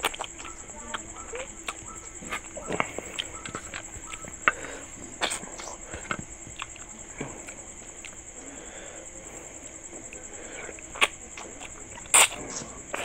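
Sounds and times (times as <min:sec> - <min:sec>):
steady high-pitched trill: 0:00.0 - 0:05.9
wet chewing and lip smacks: 0:00.0 - 0:08.5, 0:09.2 - 0:13.0
fingers squishing food on plate: 0:00.0 - 0:13.0.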